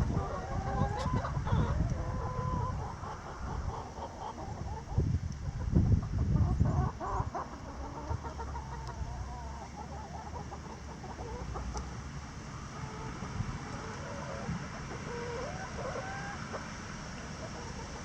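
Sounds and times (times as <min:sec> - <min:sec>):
hens clucking: 0:00.0 - 0:18.0.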